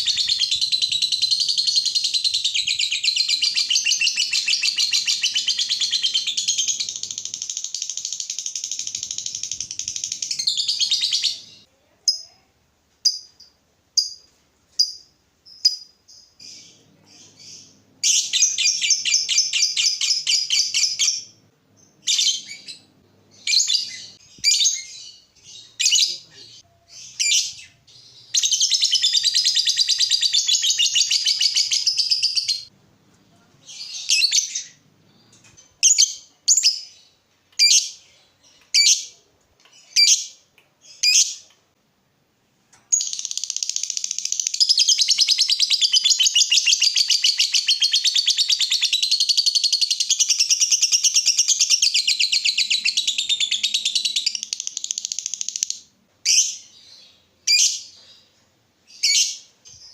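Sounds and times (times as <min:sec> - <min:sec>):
sharp bird chirps: 0:00.0 - 0:12.2
bird chattering song: 0:00.0 - 0:12.3, 0:14.8 - 0:32.7.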